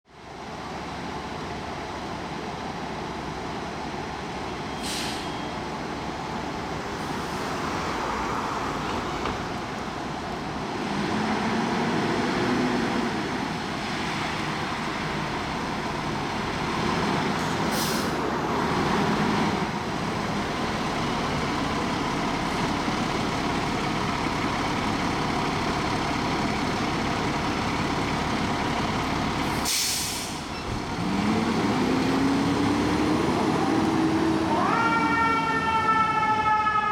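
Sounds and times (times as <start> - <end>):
heavy vehicle engine: 0.1 - 35.8
street traffic: 0.1 - 36.9
air brake hiss: 4.7 - 5.5, 17.7 - 18.2, 29.5 - 30.5.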